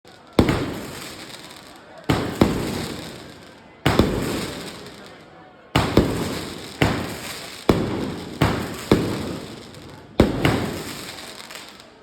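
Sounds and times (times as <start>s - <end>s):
fireworks exploding: 0.0s - 12.0s
echo of bangs: 0.4s - 1.4s, 2.1s - 5.2s, 5.8s - 11.4s.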